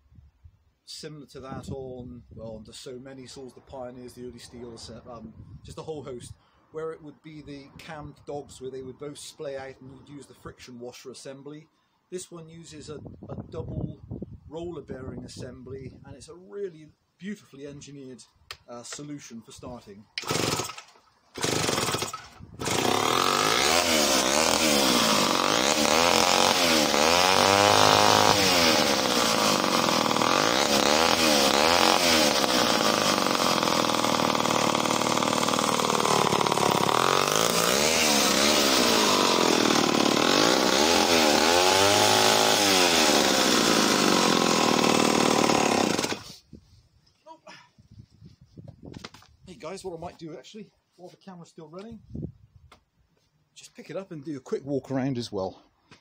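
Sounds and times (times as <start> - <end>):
chainsaw engine revving: 20.2 - 46.4.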